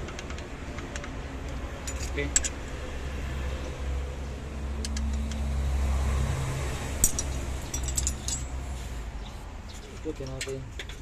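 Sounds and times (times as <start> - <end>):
hand tools clinking on metal: 1.8 - 2.6, 7.0 - 8.8.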